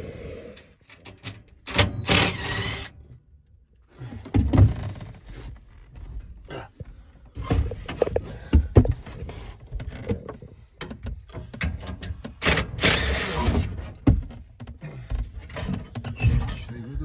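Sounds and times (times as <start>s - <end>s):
irregular knocks and clunks: 4.2s - 17.0s.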